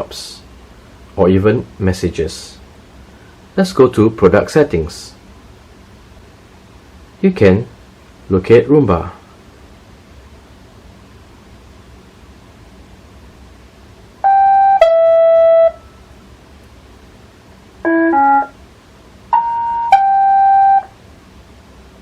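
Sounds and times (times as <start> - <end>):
robot vacuum electronic beeping tune: 17.9 - 18.5, 19.3 - 20.9.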